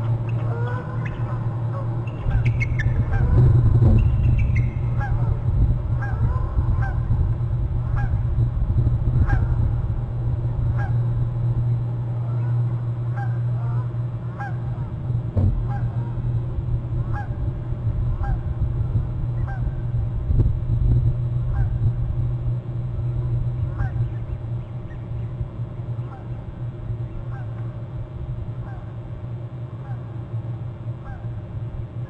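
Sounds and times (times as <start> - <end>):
bird calling: 0.0 - 5.4, 12.2 - 15.0, 23.0 - 27.8, 31.0 - 31.4
steady low hum: 0.0 - 32.0.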